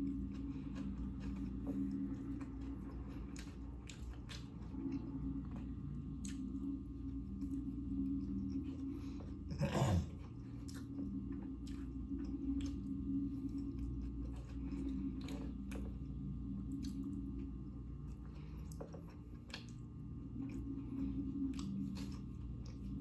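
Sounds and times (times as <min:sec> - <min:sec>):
person chewing food: 0:00.0 - 0:23.0
steady low hum: 0:00.0 - 0:23.0.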